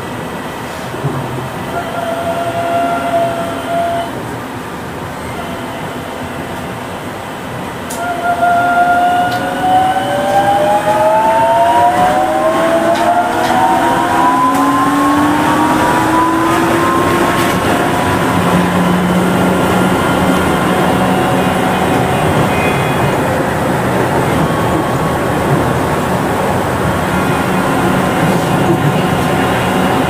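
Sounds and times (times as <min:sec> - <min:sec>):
train motor whine: 0:07.9 - 0:30.0.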